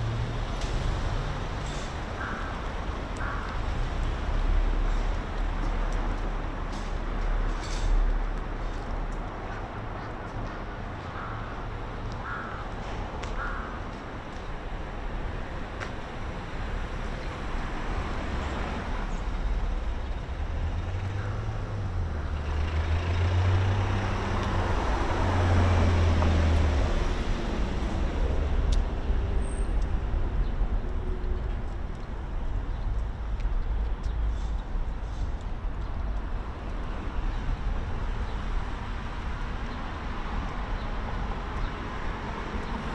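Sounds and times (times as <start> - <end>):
heavy road vehicle passing: 0.0 - 42.9
crow cawing: 2.2 - 3.6, 11.1 - 13.9.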